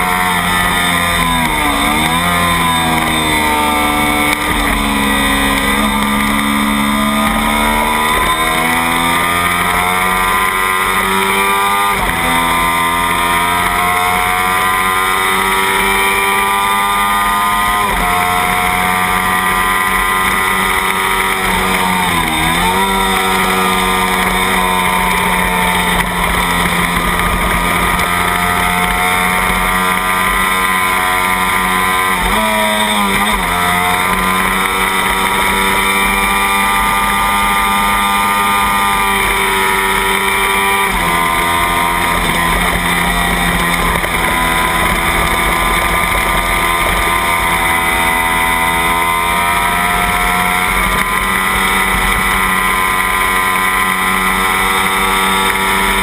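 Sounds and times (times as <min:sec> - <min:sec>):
racing motorcycle engine at full throttle: 0:00.0 - 0:56.0.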